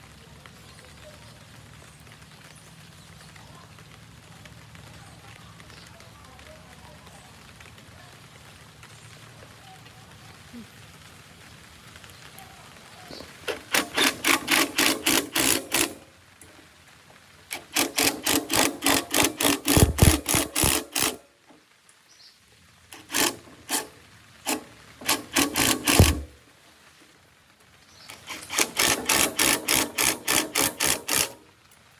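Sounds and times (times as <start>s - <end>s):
rapid mechanical strokes: 13.1s - 16.6s, 17.5s - 21.3s, 22.9s - 26.4s, 28.1s - 31.5s.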